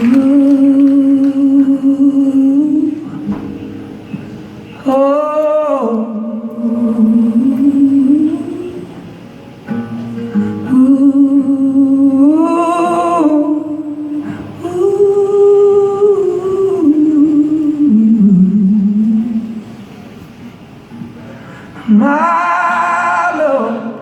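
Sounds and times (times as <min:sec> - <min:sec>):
wordless singing: 0:00.0 - 0:03.4, 0:21.8 - 0:24.0
soft guitar: 0:00.0 - 0:24.0.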